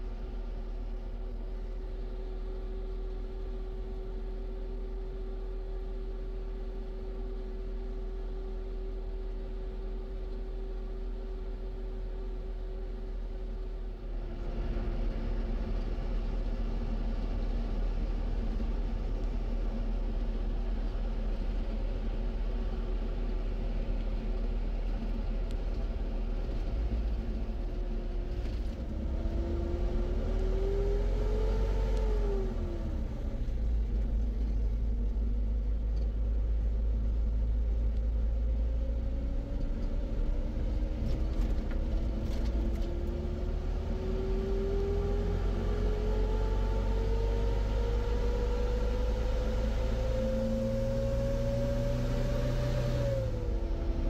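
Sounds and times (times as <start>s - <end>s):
motor vehicle engine rumbling: 14.2s - 46.0s, 53.2s - 54.0s.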